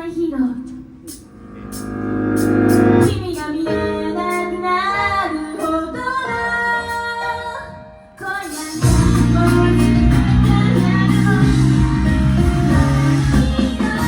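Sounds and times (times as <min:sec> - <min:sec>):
pop backing music: 0:01.1 - 0:14.0
woman singing: 0:03.1 - 0:14.0.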